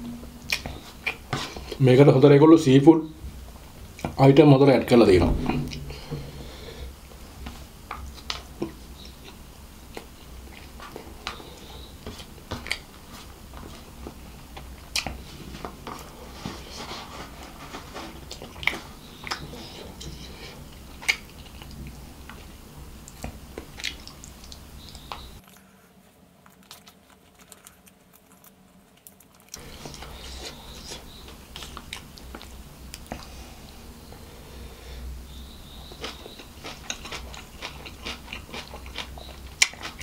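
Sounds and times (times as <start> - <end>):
chewing: 7.9 - 33.3, 35.6 - 40.0.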